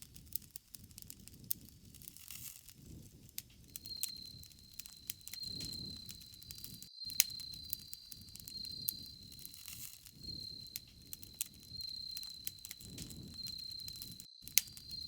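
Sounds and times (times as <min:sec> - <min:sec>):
bonfire crackling and popping: 0:00.0 - 0:15.0
insects chirring: 0:03.7 - 0:15.0.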